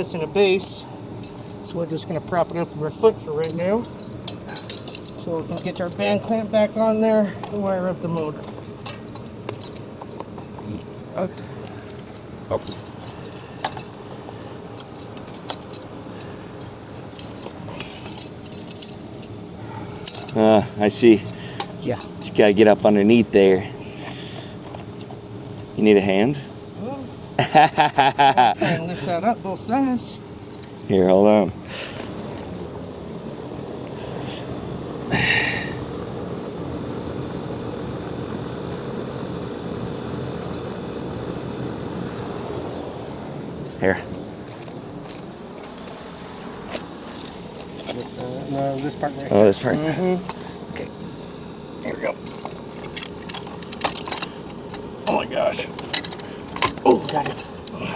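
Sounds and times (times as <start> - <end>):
steady mechanical hum: 0.0 - 57.9
metal clicks and clinks: 3.4 - 6.2, 14.7 - 19.4, 20.0 - 20.4, 51.8 - 57.9.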